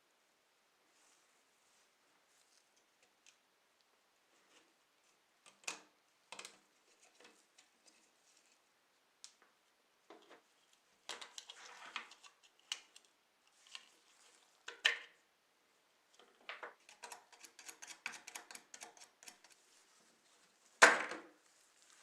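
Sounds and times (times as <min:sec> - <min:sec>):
small parts and tools clicking: 0:16.2 - 0:19.6.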